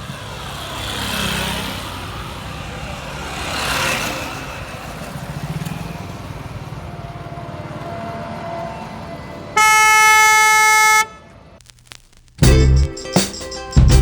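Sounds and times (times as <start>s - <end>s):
vehicle passing: 0.0s - 9.6s
highway traffic noise: 0.0s - 11.6s
loud vehicle horn: 9.6s - 11.5s.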